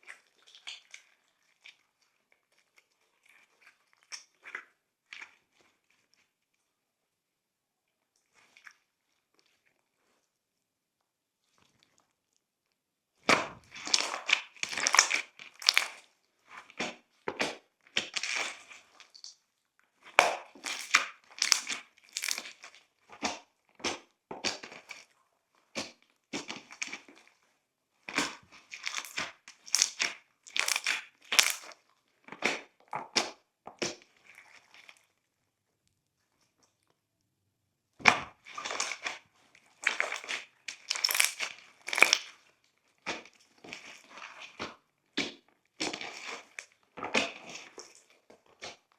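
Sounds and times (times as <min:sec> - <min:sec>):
slime crackling and popping: 0:13.3 - 0:16.0, 0:20.1 - 0:22.7, 0:28.2 - 0:31.7, 0:39.8 - 0:42.3.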